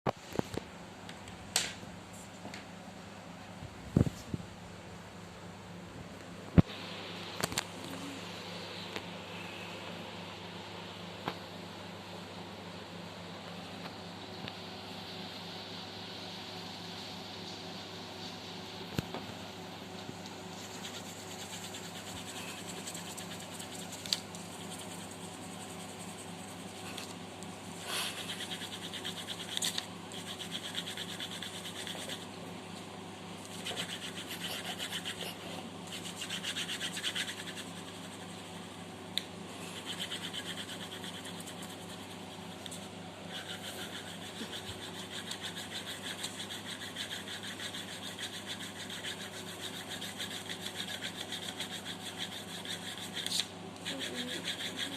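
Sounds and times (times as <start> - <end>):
steady low hum: 0.1 - 54.9
pencil scratching on paper: 20.5 - 27.1, 27.8 - 32.3, 33.4 - 38.8, 39.6 - 54.9.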